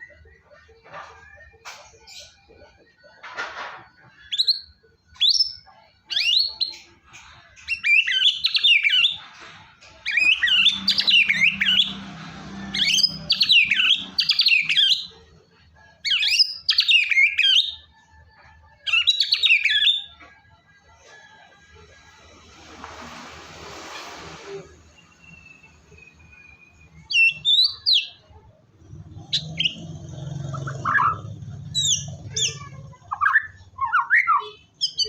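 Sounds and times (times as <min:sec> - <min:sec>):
bird whistling and warbling song: 0:04.0 - 0:09.3, 0:10.0 - 0:12.1, 0:12.7 - 0:15.1, 0:16.0 - 0:17.9, 0:18.8 - 0:20.2, 0:24.9 - 0:28.4, 0:29.3 - 0:29.9, 0:30.5 - 0:35.0.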